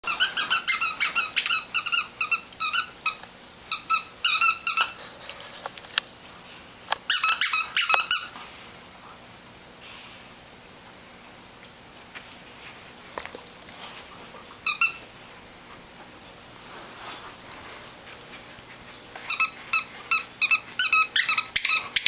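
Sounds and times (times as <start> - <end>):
squeaky toy squeaking: 0.0 - 5.0, 7.1 - 8.3, 14.6 - 15.0, 19.3 - 22.0.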